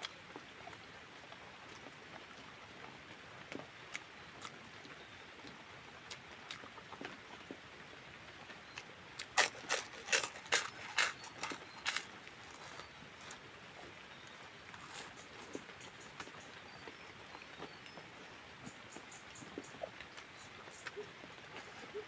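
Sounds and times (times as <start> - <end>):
person chewing: 9.2 - 13.4, 14.2 - 15.6.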